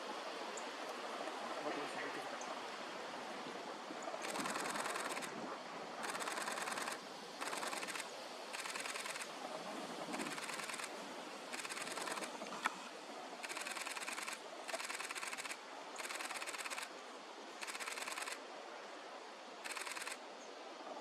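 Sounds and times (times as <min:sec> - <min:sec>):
camera shutters firing: 0:06.0 - 0:09.3, 0:13.4 - 0:16.9.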